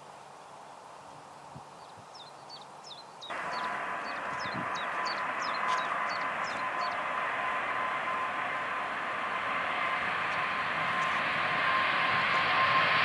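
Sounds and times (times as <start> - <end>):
small bird chirping: 1.8 - 7.0
jet airliner engines whining: 3.3 - 13.0.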